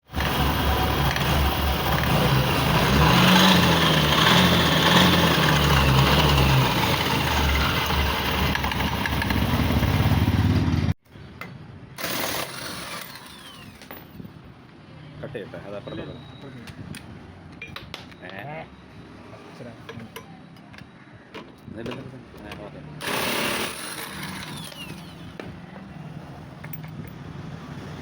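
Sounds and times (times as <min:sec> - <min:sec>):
scooter engine revving: 0:00.0 - 0:11.0, 0:23.0 - 0:25.4.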